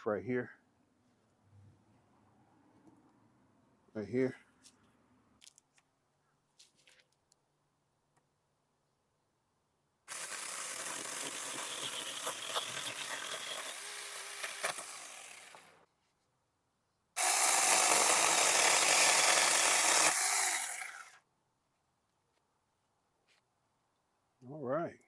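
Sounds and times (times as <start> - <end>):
electric chainsaw cutting branch: 10.1 - 15.8, 17.2 - 21.2.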